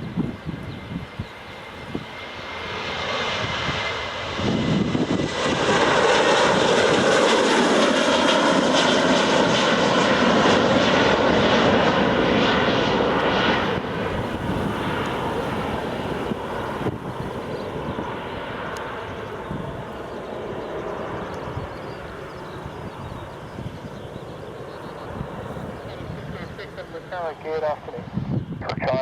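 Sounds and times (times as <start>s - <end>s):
jet airliner engines roaring: 0.0s - 29.0s.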